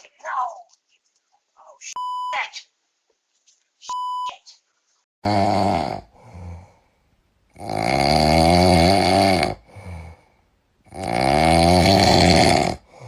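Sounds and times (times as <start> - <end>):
loud snoring: 5.2 - 6.7, 7.5 - 10.3, 10.9 - 13.0
quiet breath: 6.0 - 7.2, 9.5 - 10.6, 12.8 - 13.0.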